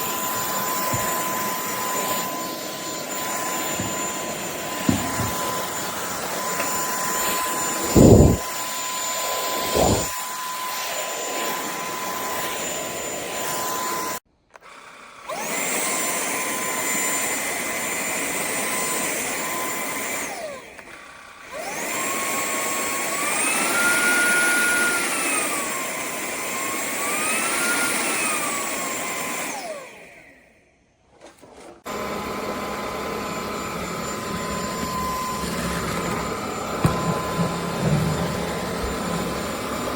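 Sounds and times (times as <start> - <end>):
vacuum motor whining: 0.0 - 30.6, 31.8 - 39.9
dull thumps: 3.7 - 5.8, 6.6 - 8.5, 36.8 - 39.1.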